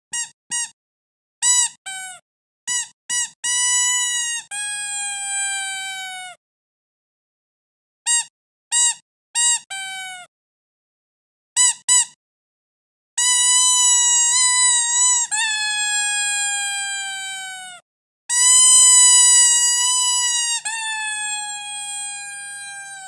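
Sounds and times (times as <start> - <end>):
squeaky dog toy squeaking: 0.1 - 0.8, 1.4 - 6.4, 8.1 - 10.3, 11.6 - 12.2, 13.2 - 23.0.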